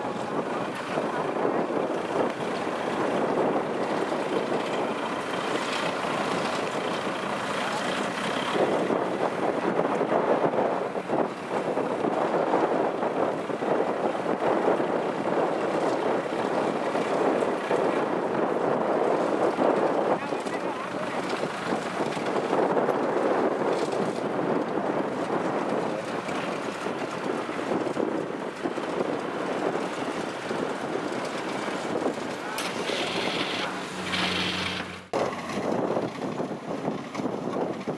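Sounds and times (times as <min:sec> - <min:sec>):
combine harvester running: 0:00.0 - 0:10.1, 0:20.3 - 0:22.6, 0:28.9 - 0:37.9
wind buffeting microphone: 0:00.0 - 0:37.9.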